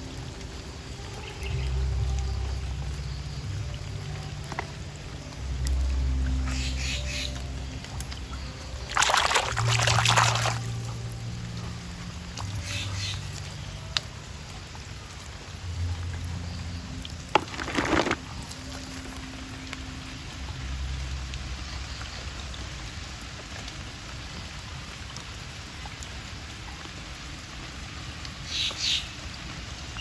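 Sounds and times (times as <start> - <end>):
light rain pattering: 0.0 - 30.0.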